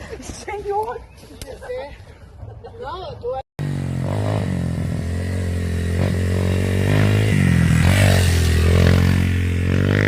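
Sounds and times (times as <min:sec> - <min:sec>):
dirt bike engine running: 0:03.6 - 0:10.0.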